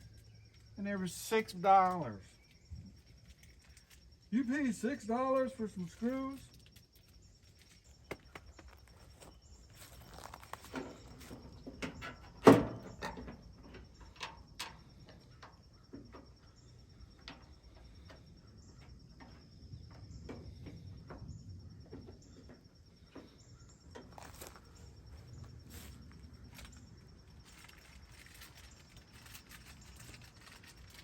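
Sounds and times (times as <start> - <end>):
hand tools and metal parts clicking: 5.2 - 13.3, 24.0 - 31.0.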